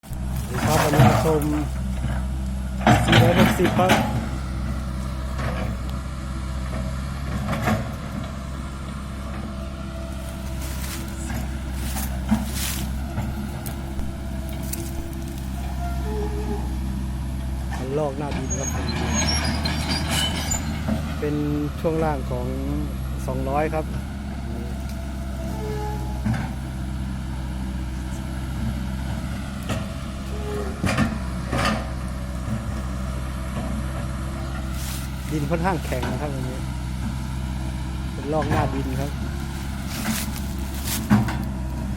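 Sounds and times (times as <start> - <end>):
knocks and scrapes: 0.0 - 2.2, 10.2 - 16.7, 38.5 - 41.5
excavator diesel engine running: 0.0 - 41.9.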